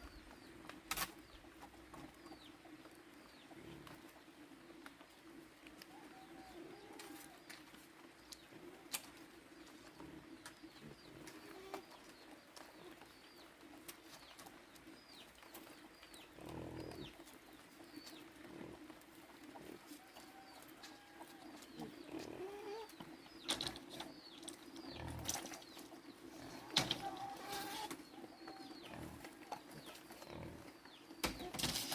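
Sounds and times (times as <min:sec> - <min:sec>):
low bird calls: 0:00.0 - 0:31.9
bird chirping: 0:19.8 - 0:31.9.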